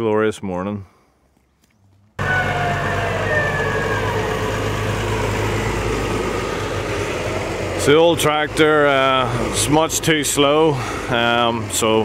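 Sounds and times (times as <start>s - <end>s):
tractor diesel engine running: 2.2s - 12.0s.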